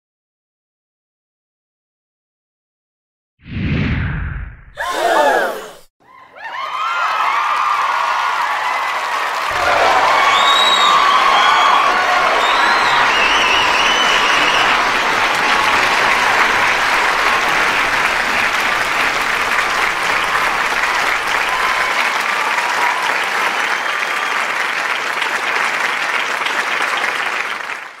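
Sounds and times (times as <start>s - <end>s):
people cheering: 4.8s - 28.0s
audience applauding: 6.4s - 28.0s.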